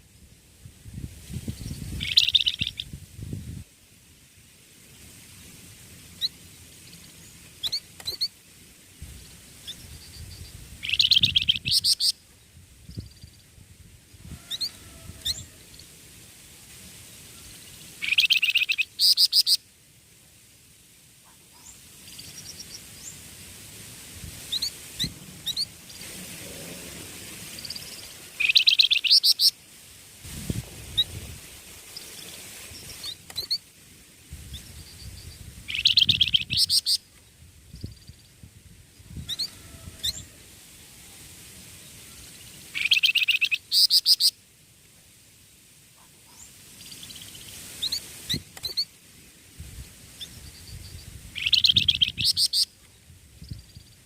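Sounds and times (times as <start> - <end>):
young songbird chirping: 1.5 - 3.0, 9.6 - 12.1, 18.0 - 19.6, 27.6 - 29.5, 34.5 - 37.0, 42.8 - 44.3, 50.2 - 54.0.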